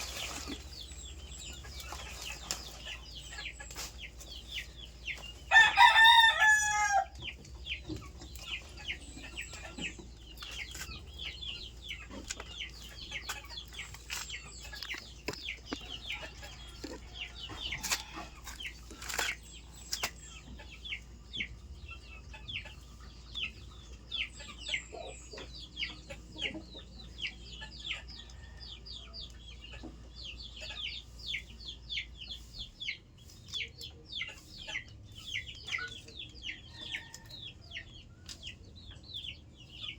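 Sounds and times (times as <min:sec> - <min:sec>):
chickens clucking: 0:00.0 - 0:39.9
rooster crowing: 0:05.5 - 0:07.2.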